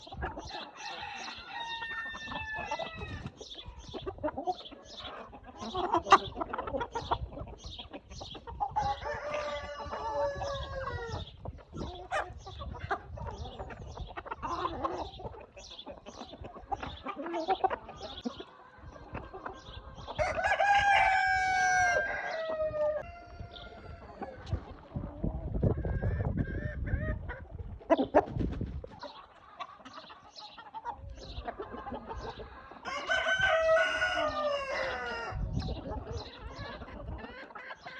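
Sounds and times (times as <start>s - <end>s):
chickens clucking: 0.0s - 37.9s
rooster crowing: 0.8s - 2.8s, 9.0s - 11.2s, 20.2s - 23.7s, 32.9s - 35.4s.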